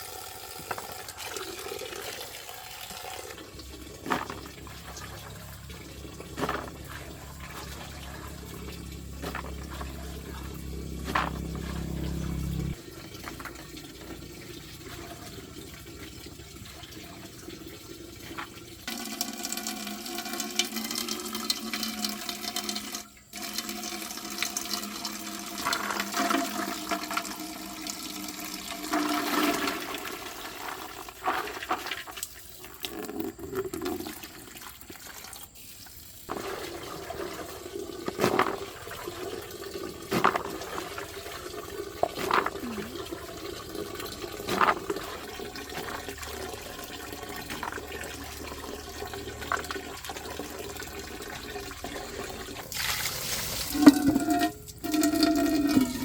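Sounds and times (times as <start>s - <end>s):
water running and splashing: 0.0s - 56.0s.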